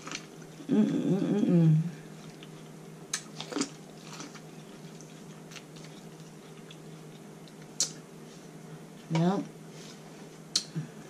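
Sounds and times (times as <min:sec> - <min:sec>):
steady low hum: 0:00.0 - 0:11.0
quiet chewing: 0:02.0 - 0:08.0
soft mouth clicks: 0:10.5 - 0:10.8.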